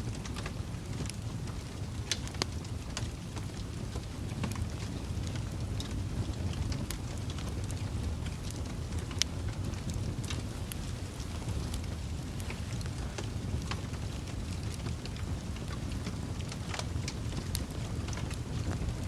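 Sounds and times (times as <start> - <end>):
low rumble of burning: 0.0 - 19.0
wood fire crackling and popping: 0.0 - 19.0.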